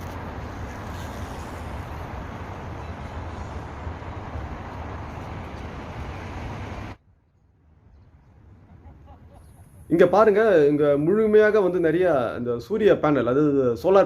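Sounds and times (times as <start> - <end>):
wind rushing over microphone: 0.0 - 7.0.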